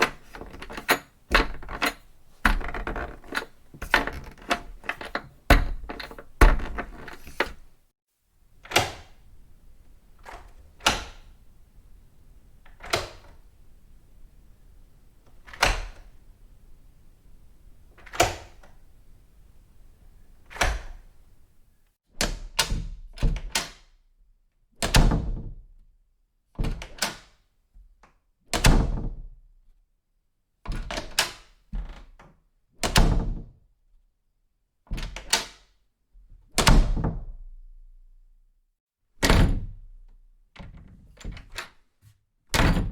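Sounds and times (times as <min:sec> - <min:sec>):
door latch clicks: 0:00.0 - 0:07.7
door shutting with a thunk: 0:00.0 - 0:07.7, 0:39.2 - 0:39.7, 0:42.5 - 0:42.9.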